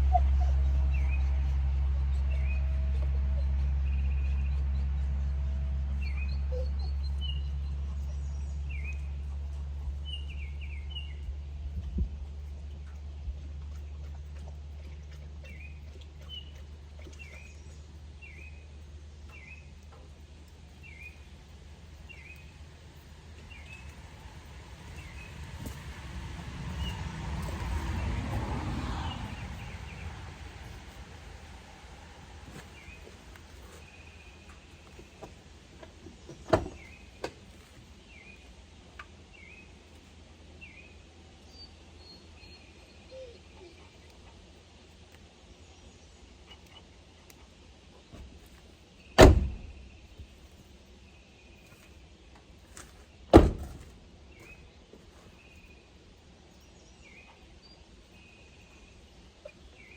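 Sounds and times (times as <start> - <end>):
steady low rumble: 0.0 - 41.5.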